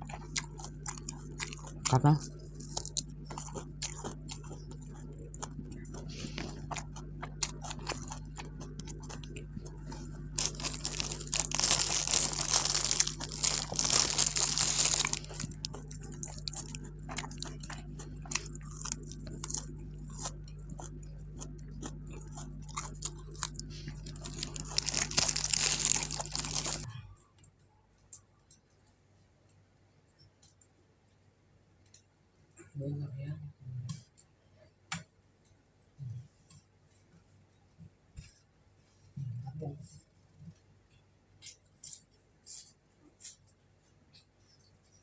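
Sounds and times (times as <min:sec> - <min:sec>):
crackly crinkling bursts: 0:00.0 - 0:27.0
steady low hum: 0:00.0 - 0:30.5
crunching and chewing food: 0:00.0 - 0:30.8, 0:39.9 - 0:45.0.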